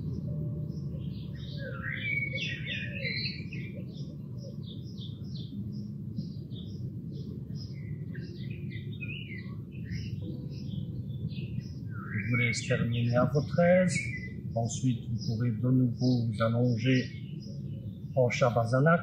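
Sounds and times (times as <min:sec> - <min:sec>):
low rumble: 0:00.0 - 0:01.9, 0:03.3 - 0:18.2
songbirds singing: 0:00.0 - 0:19.0.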